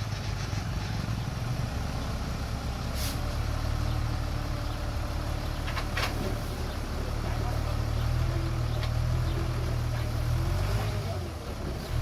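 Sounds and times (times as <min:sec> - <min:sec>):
bulldozer diesel engine running: 0:00.0 - 0:12.0
brief hiss: 0:03.0 - 0:03.3.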